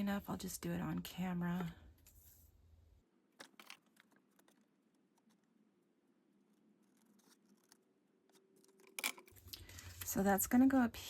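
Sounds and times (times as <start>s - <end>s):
craft paper rustling: 3.4s - 5.6s, 6.4s - 10.2s.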